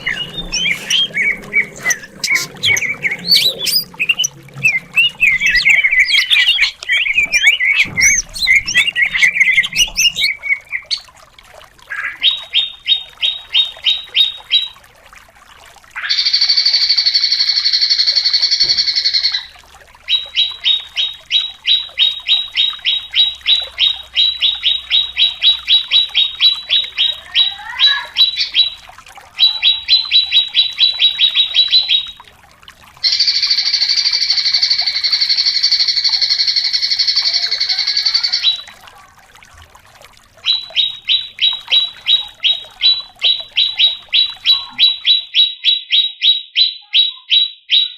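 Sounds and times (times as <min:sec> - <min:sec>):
high buzzing bird trill: 0:00.0 - 0:11.0, 0:33.0 - 0:38.7
bird singing varied warble: 0:00.0 - 0:11.1, 0:33.0 - 0:38.7, 0:40.4 - 0:47.9.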